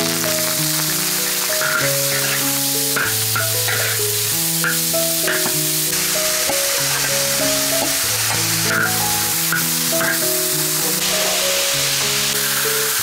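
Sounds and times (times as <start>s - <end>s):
music with slow held notes: 0.0s - 13.0s
vegetables sizzling in a wok: 0.0s - 13.0s.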